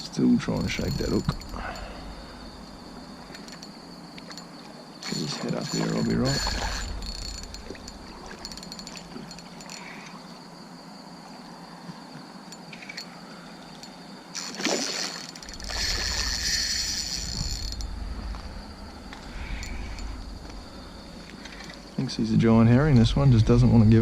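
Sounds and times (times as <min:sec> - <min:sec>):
night insects droning: 0:00.0 - 0:24.0
fish splashing at water surface: 0:14.4 - 0:17.2.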